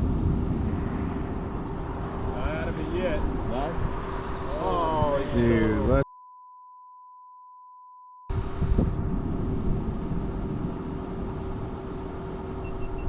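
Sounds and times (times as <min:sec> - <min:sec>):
vehicle driving: 0:00.0 - 0:06.0, 0:08.3 - 0:13.0
wind noise: 0:00.0 - 0:06.0, 0:08.3 - 0:13.0
censor bleep: 0:06.0 - 0:08.3, 0:12.6 - 0:13.0.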